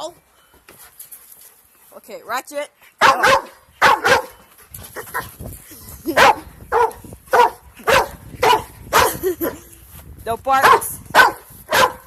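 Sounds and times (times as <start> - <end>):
dog barking: 3.0 - 4.4, 6.2 - 9.2, 10.6 - 12.0.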